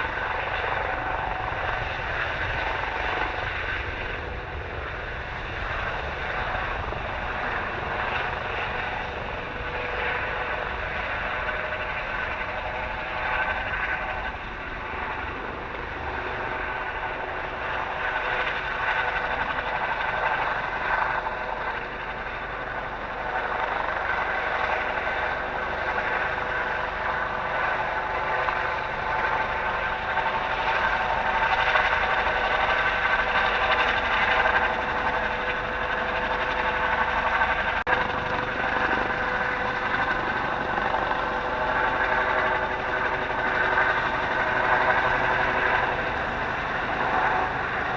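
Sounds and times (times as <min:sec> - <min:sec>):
helicopter engines and rotors whining: 0:00.0 - 0:47.9.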